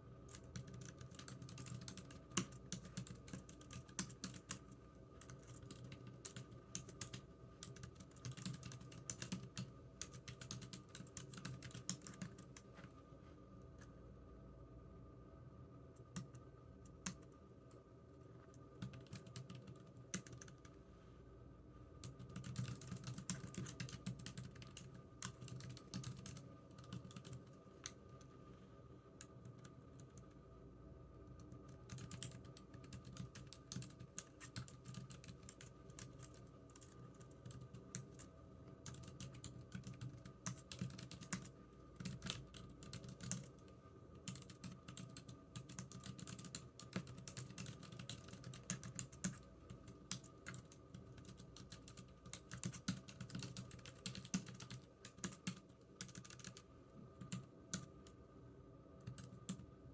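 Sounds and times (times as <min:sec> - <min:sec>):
typing on computer keyboard: 0:00.3 - 0:12.6, 0:18.8 - 0:20.7, 0:22.0 - 0:28.0, 0:31.4 - 0:58.2, 0:59.0 - 0:59.6.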